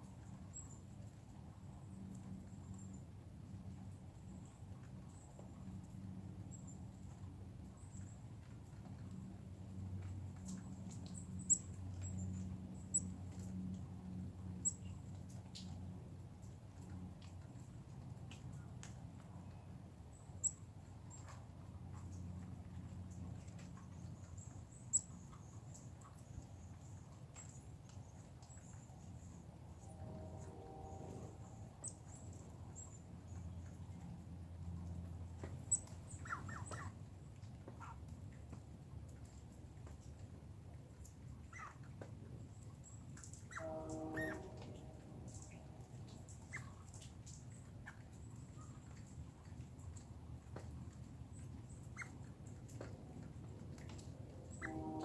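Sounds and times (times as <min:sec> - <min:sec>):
small animal chirps: 0:35.7 - 0:36.9.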